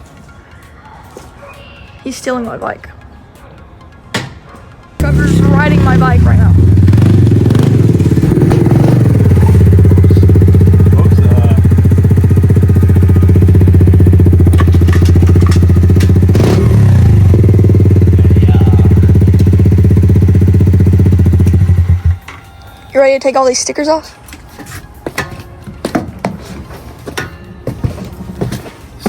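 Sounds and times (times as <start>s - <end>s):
dirt bike engine running: 5.0s - 22.3s.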